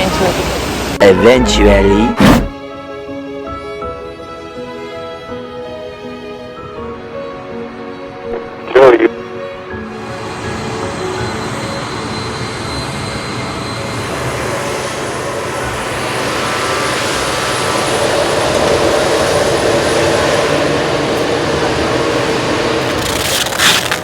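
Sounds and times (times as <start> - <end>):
jet engine rushing: 10.3 - 23.2.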